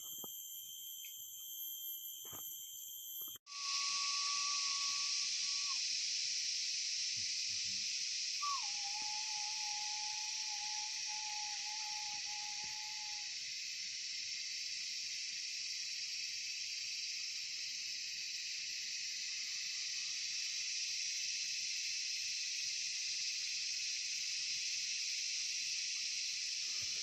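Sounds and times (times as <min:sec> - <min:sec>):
thin steady tone: 0:00.0 - 0:15.1
insects droning: 0:00.0 - 0:27.0.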